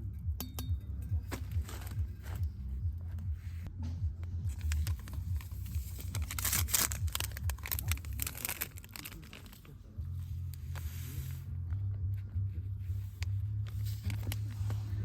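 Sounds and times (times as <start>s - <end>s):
low rumble: 0.0s - 15.0s
rustling and crinkling handling: 1.2s - 3.7s, 4.4s - 11.5s, 12.7s - 15.0s.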